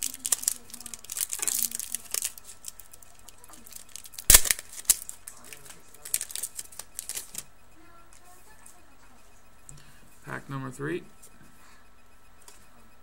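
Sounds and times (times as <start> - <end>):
trading cards clicking and snapping: 3.9 - 7.4.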